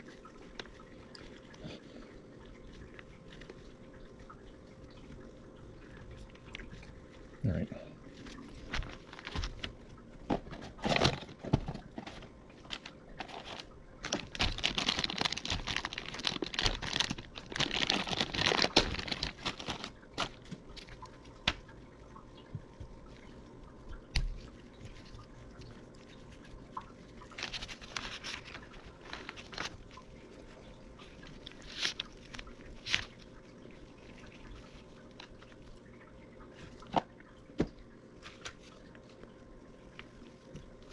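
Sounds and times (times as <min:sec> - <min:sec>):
rubber crinkling and squishing: 0:08.1 - 0:21.9, 0:22.7 - 0:40.9.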